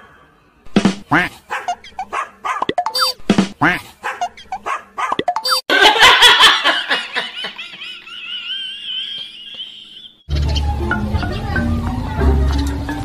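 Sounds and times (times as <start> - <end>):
dog barking: 1.5 - 2.7, 4.0 - 5.2.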